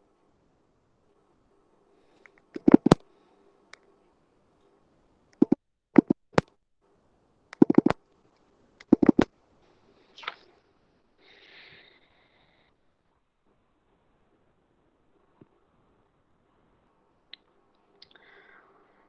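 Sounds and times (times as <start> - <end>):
sharp clicks and taps: 2.2 - 3.0, 5.4 - 6.5, 7.5 - 8.0, 8.8 - 9.3.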